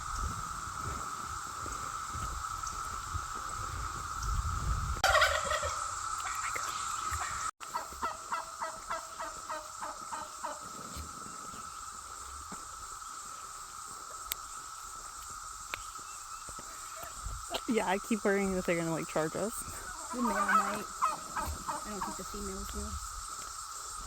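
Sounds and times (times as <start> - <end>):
cicadas droning: 0.0 - 24.0
wild turkey calling: 5.0 - 23.5.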